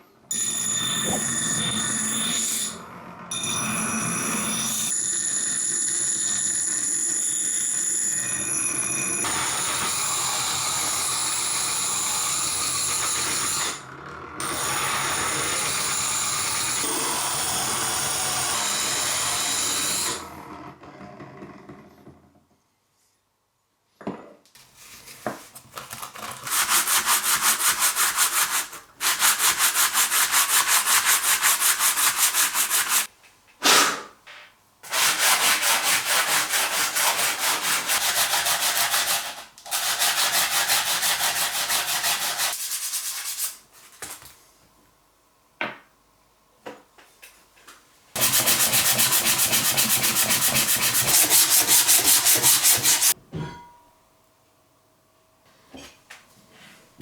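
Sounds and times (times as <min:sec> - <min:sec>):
hand sanding with sandpaper: 0:26.1 - 0:33.1, 0:34.9 - 0:43.7, 0:48.2 - 0:53.2.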